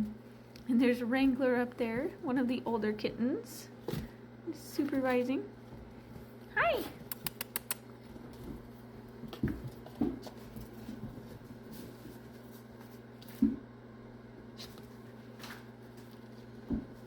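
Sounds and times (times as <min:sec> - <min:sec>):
kittens bumping and rustling: 0:03.8 - 0:13.7.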